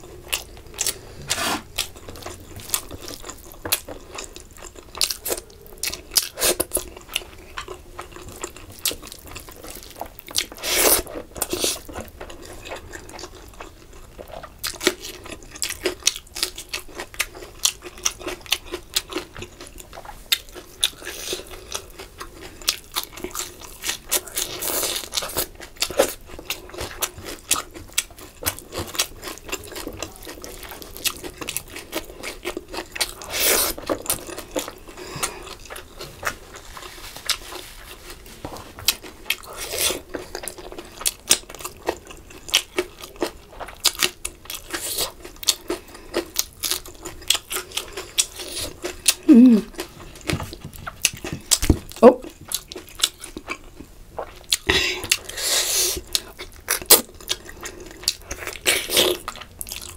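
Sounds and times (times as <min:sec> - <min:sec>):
wet chewing and lip-smacking: 0:38.8 - 0:59.9.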